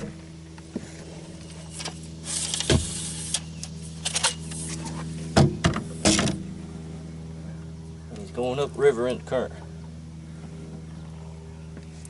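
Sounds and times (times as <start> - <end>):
steady low hum: 0.0 - 12.0
fishing reel drag whirring: 0.7 - 5.3.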